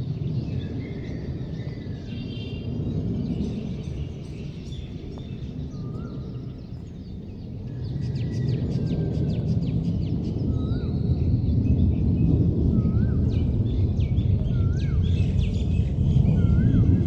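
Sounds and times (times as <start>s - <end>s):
low rumble: 10.6s - 17.0s.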